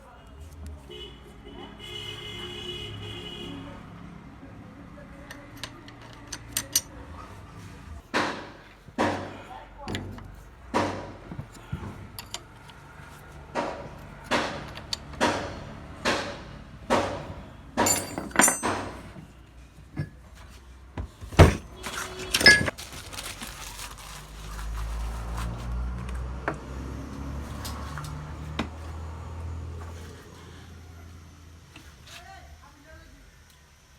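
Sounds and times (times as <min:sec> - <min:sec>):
metallic clanks: 0:05.3 - 0:07.0, 0:13.6 - 0:19.2.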